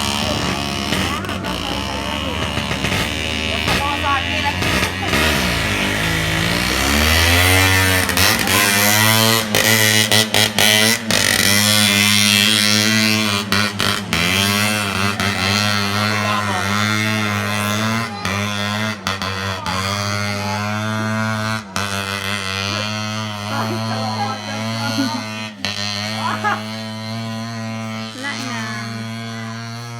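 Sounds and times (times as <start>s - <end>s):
motorcycle engine: 0.0s - 29.9s.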